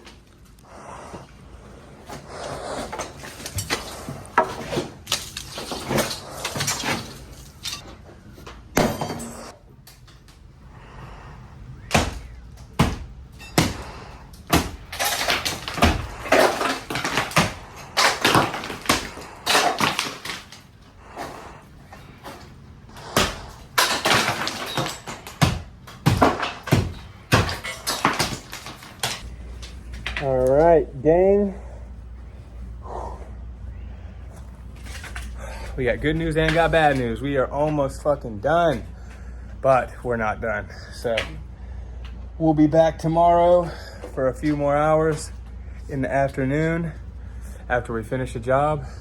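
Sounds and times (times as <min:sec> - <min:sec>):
debris scraping: 0:01.6 - 0:10.4, 0:11.8 - 0:30.8
debris banging and rattling: 0:02.0 - 0:10.5, 0:11.8 - 0:30.7.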